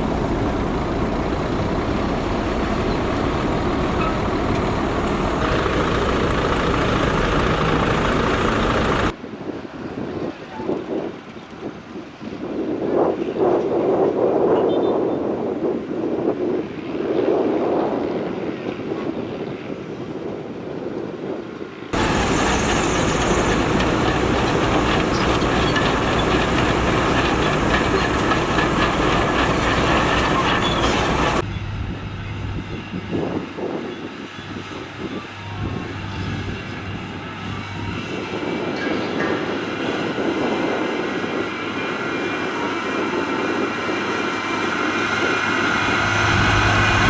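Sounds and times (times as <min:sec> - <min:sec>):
diesel engines running: 0:00.0 - 0:09.2, 0:22.0 - 0:33.0, 0:34.6 - 0:38.8, 0:41.2 - 0:47.0
machinery rattling and clanking: 0:00.0 - 0:09.2, 0:22.0 - 0:31.5.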